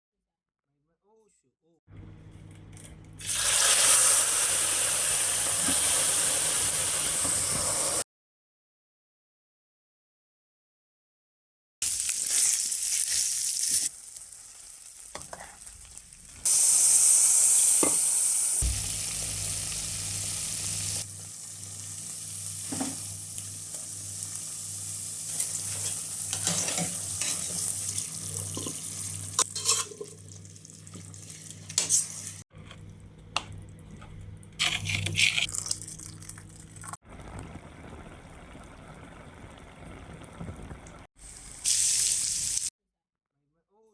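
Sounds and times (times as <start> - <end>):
chicken sizzling: 3.2 - 8.0, 11.8 - 32.4, 34.6 - 42.7
low hum: 18.6 - 21.0.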